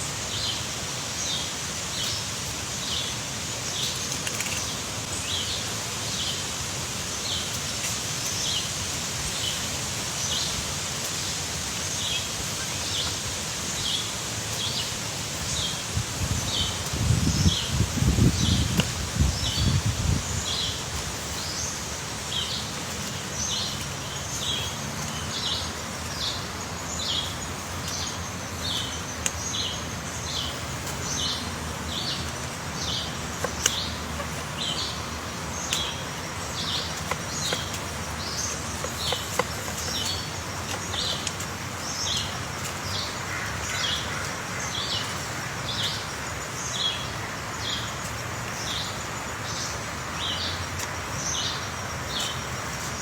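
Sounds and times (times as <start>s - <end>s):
steady background hiss: 0.0s - 53.0s
bird chirping: 11.7s - 53.0s.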